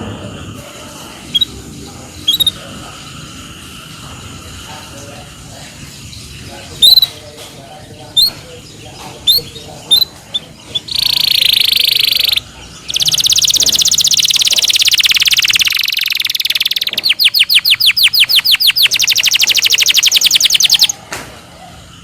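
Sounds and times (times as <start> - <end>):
canary singing trills: 1.1 - 21.0.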